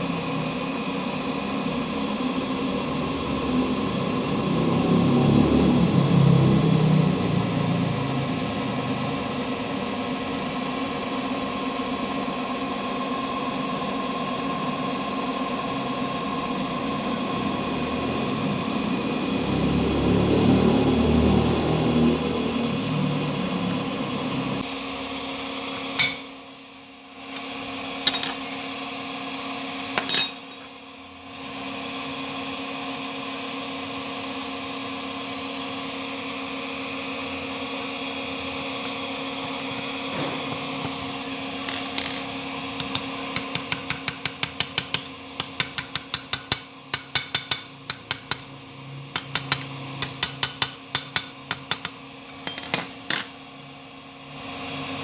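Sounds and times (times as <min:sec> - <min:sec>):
machine hum: 0:15.9 - 0:31.6
metallic taps and clinks: 0:28.0 - 0:28.4, 0:30.0 - 0:30.6, 0:49.2 - 0:53.5.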